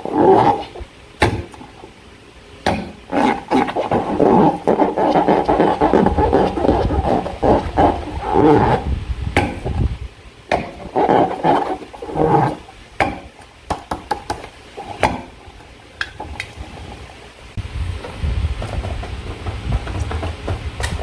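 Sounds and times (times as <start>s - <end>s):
slime squelching: 2.8s - 8.9s.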